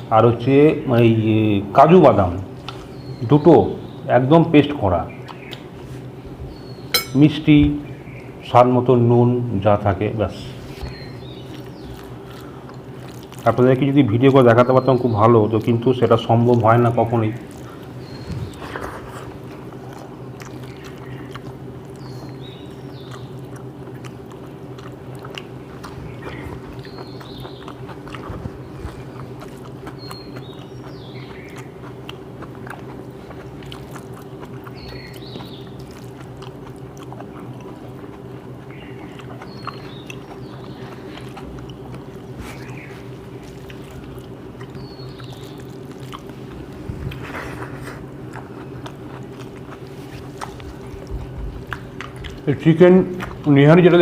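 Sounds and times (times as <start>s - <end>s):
steady low hum: 0.0s - 54.0s
chewing: 2.5s - 3.2s, 5.1s - 7.1s, 10.4s - 54.0s
lip smacks: 5.2s - 5.7s, 17.4s - 53.5s.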